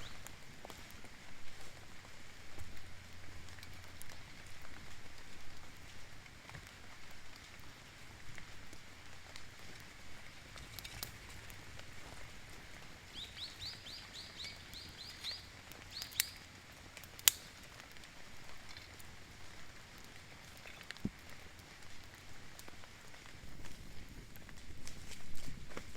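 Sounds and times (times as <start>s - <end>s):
light rain hiss: 0.0s - 25.9s
bird chirping: 13.1s - 16.5s
sharp clicks: 14.2s - 16.4s, 17.0s - 17.6s.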